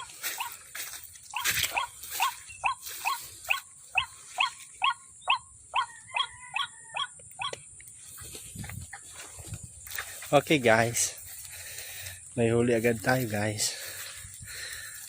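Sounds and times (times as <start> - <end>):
waterhen croaking calls: 0.0 - 0.6, 1.3 - 7.6.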